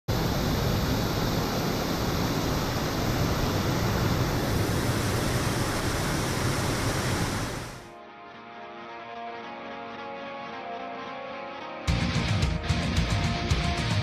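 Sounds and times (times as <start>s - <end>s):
steady rushing noise: 0.1s - 7.9s.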